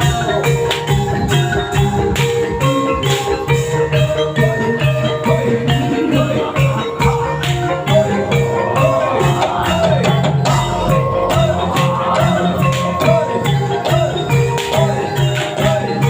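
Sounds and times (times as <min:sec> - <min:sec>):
gamelan-style percussion: 0:00.0 - 0:16.0
metallophone notes: 0:00.0 - 0:16.0
repeating low note: 0:10.5 - 0:12.6.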